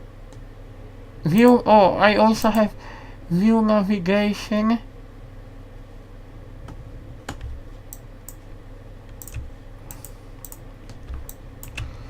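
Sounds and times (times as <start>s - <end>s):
steady low hum: 0.0s - 12.0s
computer key clicks: 9.1s - 12.0s.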